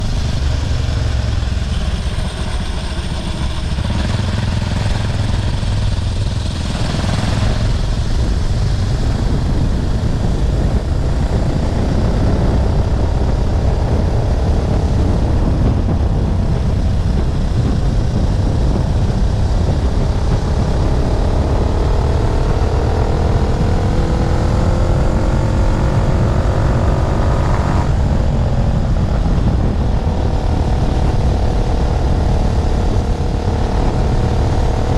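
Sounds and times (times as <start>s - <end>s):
motorized bike engine running: 0.0s - 26.0s
wind rumble on microphone: 0.0s - 34.9s.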